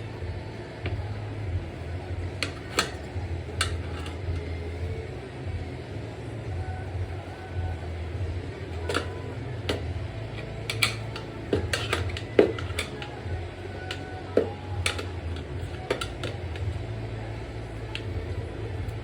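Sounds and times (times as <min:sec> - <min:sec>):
steady low hum: 0:00.0 - 0:19.0
tire irons clanking on wheel rim: 0:08.8 - 0:13.2.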